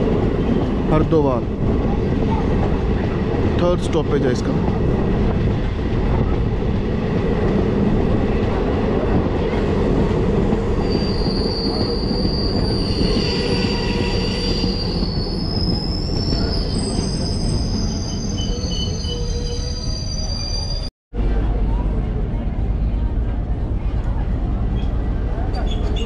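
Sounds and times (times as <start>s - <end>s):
train rumbling on track: 0.0s - 26.0s
high metallic brake squeal: 10.8s - 20.9s.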